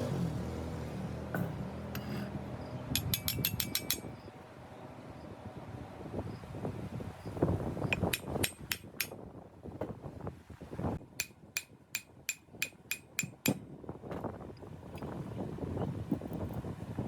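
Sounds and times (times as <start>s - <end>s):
hammer tapping on metal: 3.0s - 4.1s, 8.0s - 9.2s, 11.2s - 13.6s.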